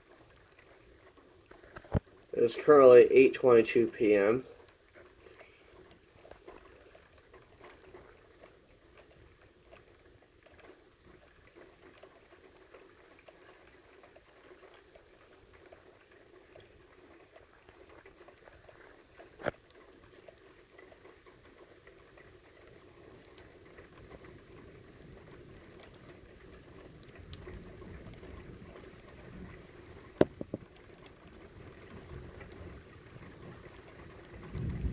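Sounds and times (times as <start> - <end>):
rain patter: 0.0 - 34.9
low thunder rumble: 34.4 - 34.9.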